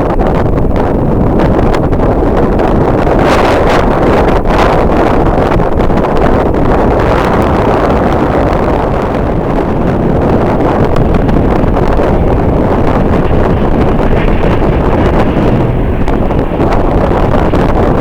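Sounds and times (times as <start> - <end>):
wind blowing across microphone: 0.0 - 18.0.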